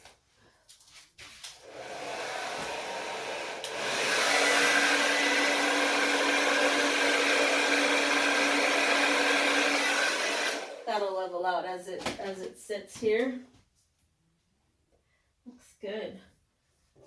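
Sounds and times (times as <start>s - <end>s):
blow dryer running: 1.6s - 11.0s.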